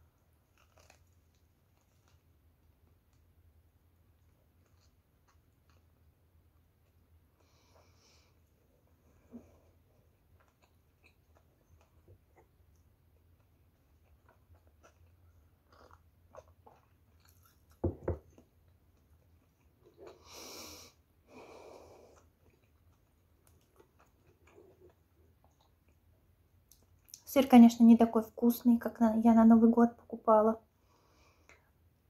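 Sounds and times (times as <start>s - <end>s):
chewing with mouth clicks: 4.2s - 7.1s, 9.8s - 20.3s, 22.1s - 27.2s.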